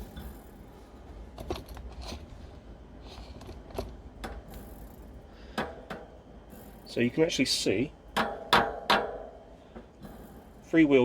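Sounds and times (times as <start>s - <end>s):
low steady hum: 0.0s - 11.0s
bicycle wheel clicks and knocks: 8.2s - 9.3s.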